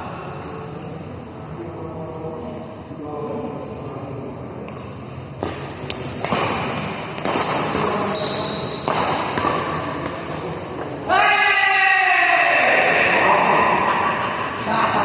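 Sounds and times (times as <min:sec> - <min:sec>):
racket hitting shuttlecock: 0:04.7 - 0:10.4
shoes squeaking on court floor: 0:04.7 - 0:10.9.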